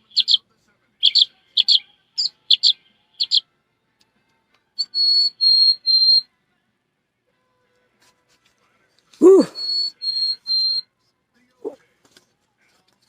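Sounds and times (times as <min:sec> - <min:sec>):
high whistled notes: 0:09.2 - 0:10.8
person imitating bird chirps: 0:09.2 - 0:10.8.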